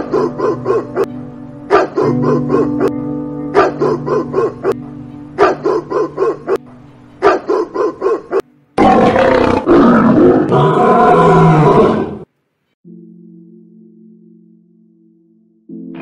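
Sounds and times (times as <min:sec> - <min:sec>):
small dog barking: 0:01.7 - 0:04.8, 0:05.4 - 0:06.6, 0:07.2 - 0:08.4
lion roaring: 0:07.6 - 0:12.3.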